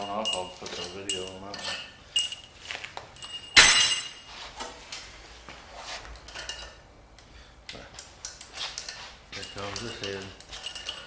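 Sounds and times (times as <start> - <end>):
metal tools clinking: 0.0 - 4.6, 6.2 - 6.8, 8.2 - 11.0
loud metallic clank: 3.6 - 4.3.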